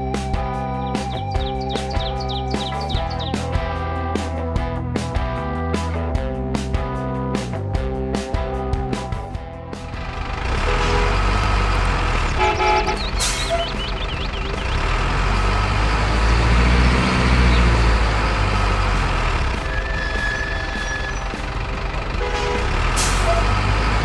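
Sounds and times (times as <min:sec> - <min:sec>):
truck engine rumbling: 0:08.9 - 0:24.0
short horn toots: 0:10.5 - 0:13.8, 0:22.2 - 0:23.8.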